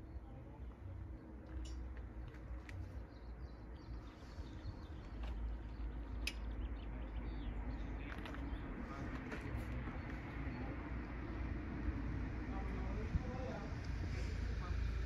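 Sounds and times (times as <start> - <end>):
low steady rumble: 9.9 - 15.0.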